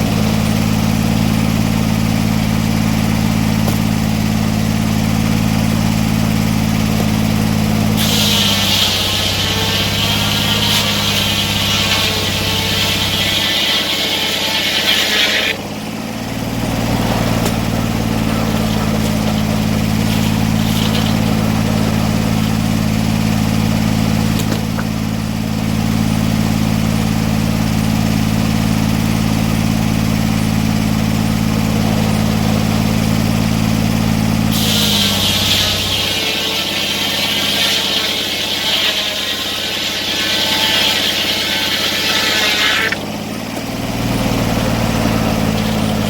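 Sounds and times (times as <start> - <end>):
sawmill engine running: 0.0 - 46.0
high hiss: 8.0 - 15.6.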